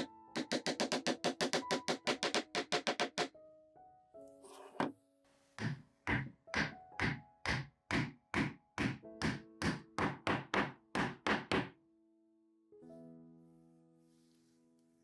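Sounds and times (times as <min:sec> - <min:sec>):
mallet knocking on wood: 0:00.0 - 0:03.3, 0:05.6 - 0:11.7.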